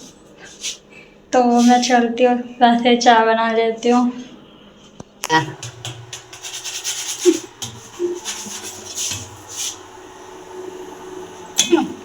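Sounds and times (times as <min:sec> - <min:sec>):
kitchen utensils scraping: 0:05.4 - 0:09.9.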